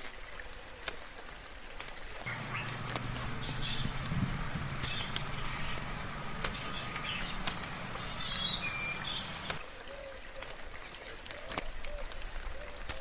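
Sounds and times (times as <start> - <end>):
soft rain hissing: 0.0 - 13.0
sharp drips ticking: 1.8 - 9.6
birds chirping and whistling: 2.3 - 9.6
low background rumble: 2.3 - 9.6.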